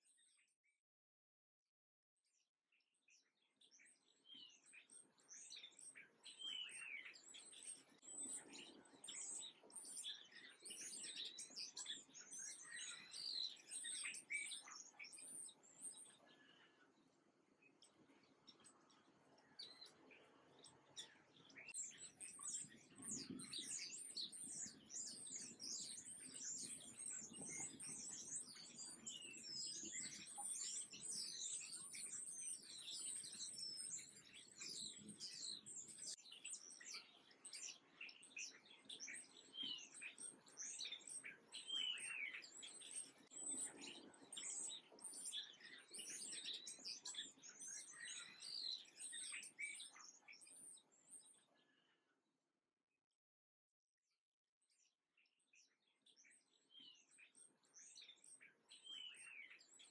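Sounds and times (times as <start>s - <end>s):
small songbirds chirping: 0.0s - 0.8s, 2.2s - 52.2s, 54.6s - 59.9s.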